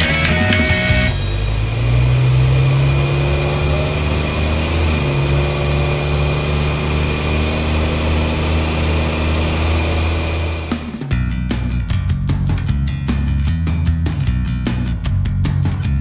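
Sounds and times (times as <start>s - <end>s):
large vehicle engine running: 0.0s - 11.7s.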